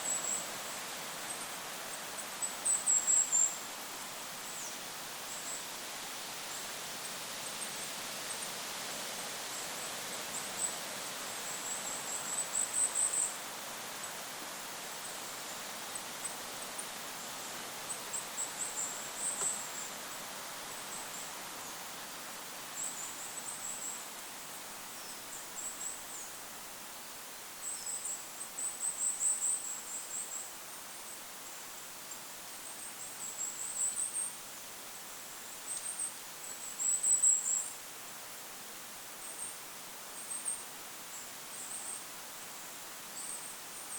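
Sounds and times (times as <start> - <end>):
wind hiss: 0.0 - 43.9.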